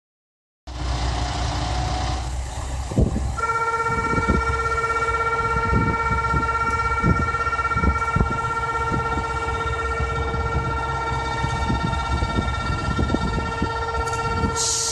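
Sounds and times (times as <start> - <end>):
diesel train engine idling: 0.7 - 14.9
electronic departure buzzer: 3.4 - 14.9.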